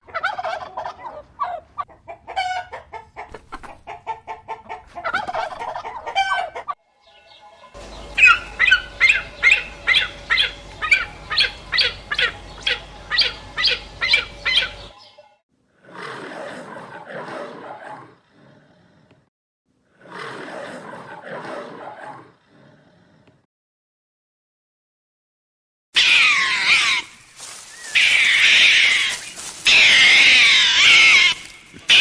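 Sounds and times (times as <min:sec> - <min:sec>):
chickens clucking: 0:00.1 - 0:15.3.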